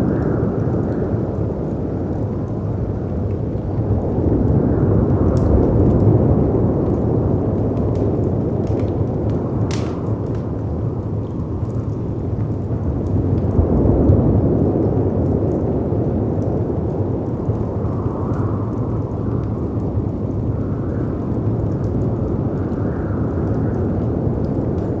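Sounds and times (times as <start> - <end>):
fireplace crackling: 6.8 - 13.5.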